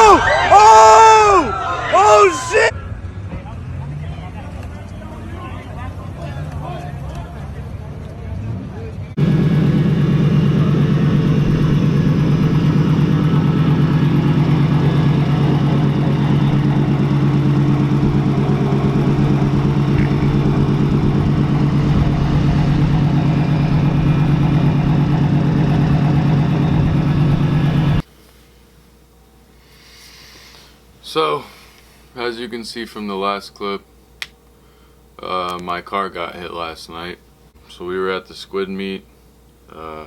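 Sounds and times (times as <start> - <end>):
car engine droning: 0.0 - 28.1.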